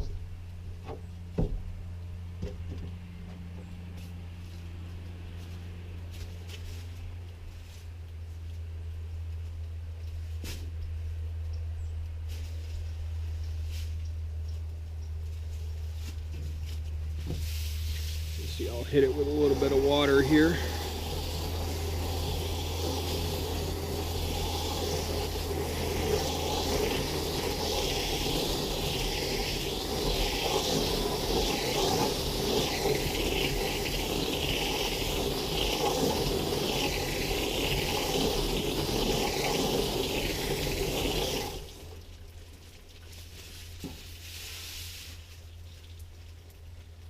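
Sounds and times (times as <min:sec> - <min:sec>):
water spray hissing on metal: 0:17.4 - 0:42.0, 0:43.1 - 0:45.5.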